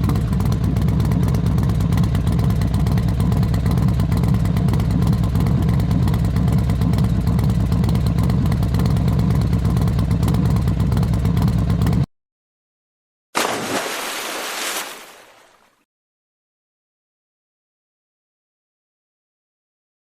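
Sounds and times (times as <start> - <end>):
vehicle engine running under load: 0.0 - 12.1
rushing splashing noise: 13.4 - 15.8.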